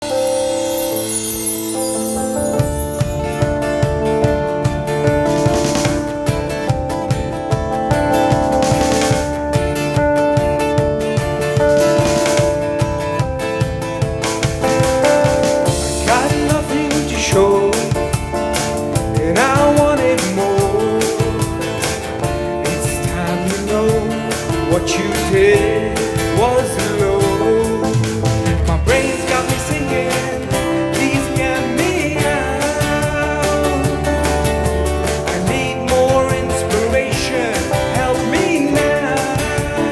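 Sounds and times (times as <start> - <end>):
drums: 0.0 - 39.9
guitar: 0.0 - 39.9
person singing: 15.7 - 39.9.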